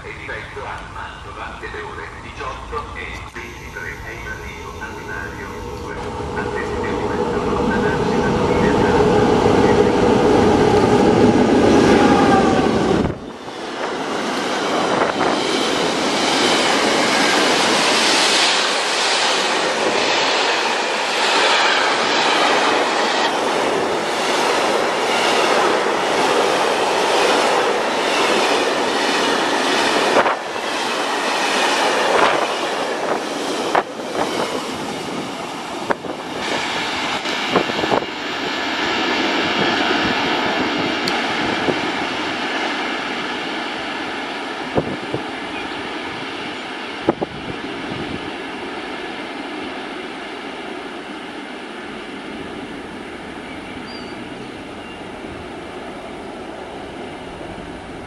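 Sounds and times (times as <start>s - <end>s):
loud low rumble: 2.6s - 11.4s.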